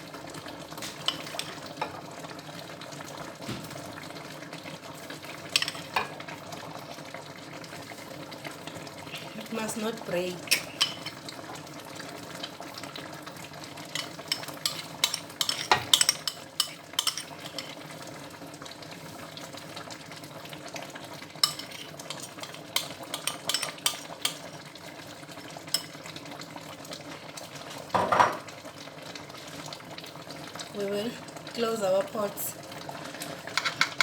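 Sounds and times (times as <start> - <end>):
soup simmering: 0.0 - 34.0
spoon scraping pot: 0.9 - 2.0, 5.5 - 6.2, 10.4 - 11.3, 13.9 - 17.9, 21.4 - 24.5, 25.8 - 26.0, 33.5 - 34.0
metal spoon clinking against pot: 1.1 - 1.6, 5.5 - 6.1, 10.5 - 11.2, 13.9 - 17.8, 21.4 - 24.5, 25.8 - 26.0, 33.6 - 34.0.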